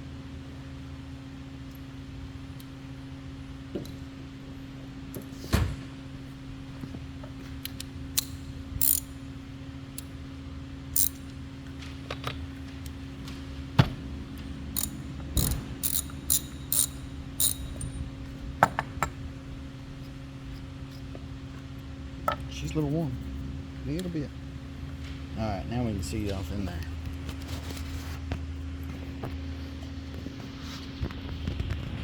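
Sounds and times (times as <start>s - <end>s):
steady low hum: 0.0s - 32.0s
ratchet wrench clicking: 7.7s - 9.2s, 11.0s - 11.3s, 14.8s - 18.0s.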